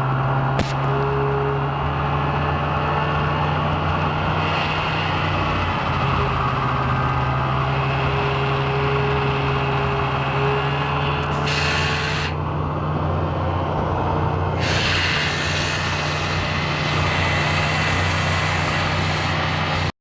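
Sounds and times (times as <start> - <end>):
snowmobile engine drone: 0.0 - 19.9
rushing noise: 3.9 - 12.5, 13.2 - 19.9.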